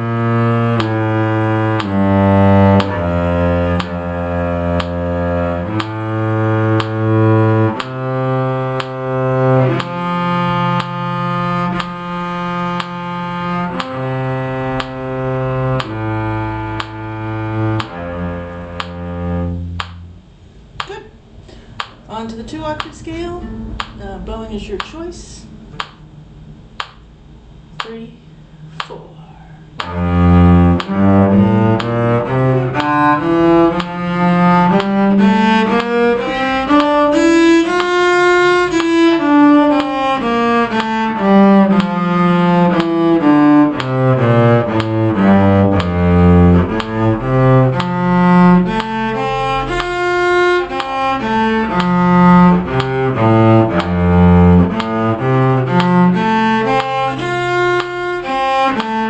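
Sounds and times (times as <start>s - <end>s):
cello bowed notes: 0.0s - 59.0s.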